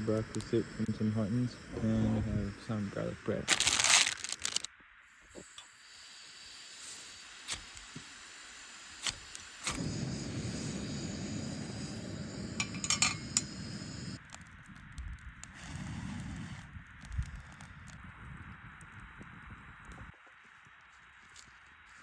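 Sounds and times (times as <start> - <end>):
metal utensils clinking on pot: 12.6 - 13.4.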